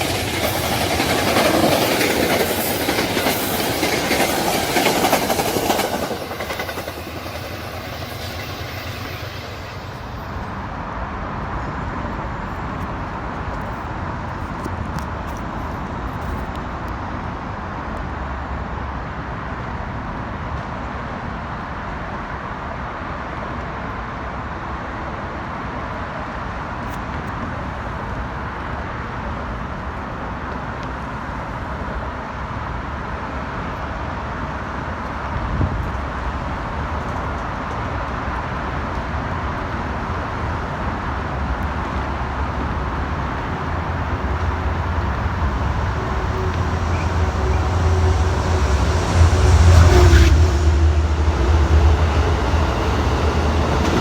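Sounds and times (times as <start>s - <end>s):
road traffic passing: 38.7s - 54.0s
low rumble: 42.1s - 54.0s.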